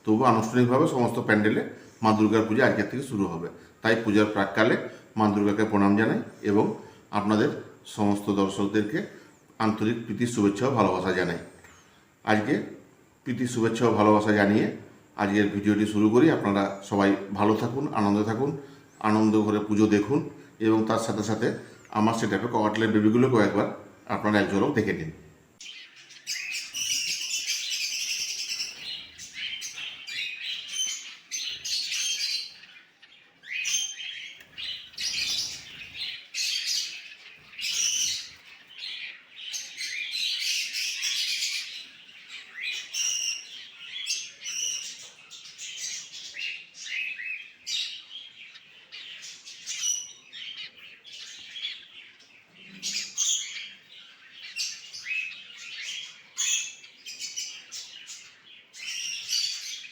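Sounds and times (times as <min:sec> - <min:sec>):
cockatiels chirping: 0:25.6 - 0:59.9.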